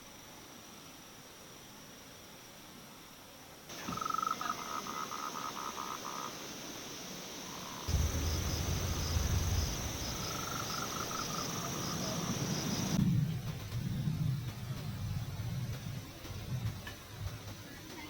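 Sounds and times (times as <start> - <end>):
frog pulsed calls: 3.7 - 6.5, 7.4 - 13.0
insects trilling: 3.7 - 13.0
low rumble: 7.9 - 17.5.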